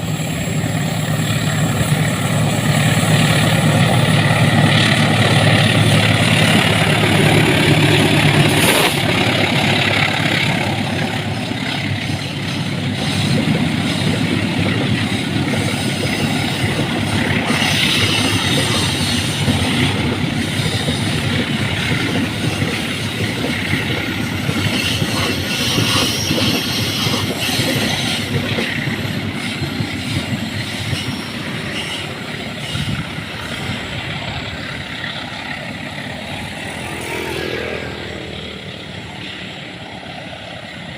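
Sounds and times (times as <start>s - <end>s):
train rumbling past: 0.0s - 40.9s
train wheels clattering over rail joints: 0.0s - 40.9s.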